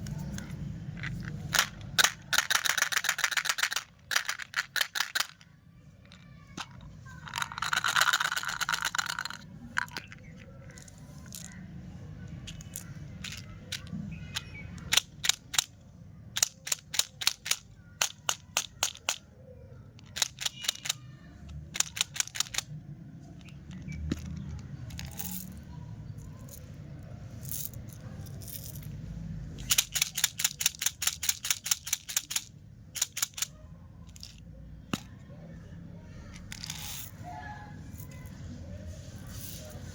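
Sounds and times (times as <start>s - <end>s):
quick sharp clicks and taps: 21.7s - 22.7s.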